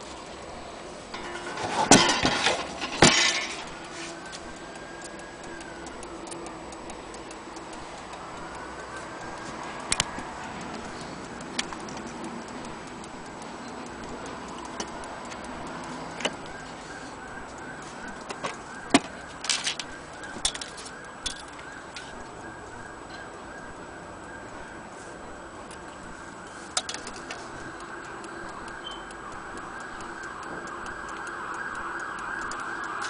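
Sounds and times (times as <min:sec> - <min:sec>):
sharp knocks with rattling: 0:01.2 - 0:03.7
faint clicks: 0:02.7 - 0:24.4, 0:25.6 - 0:33.0.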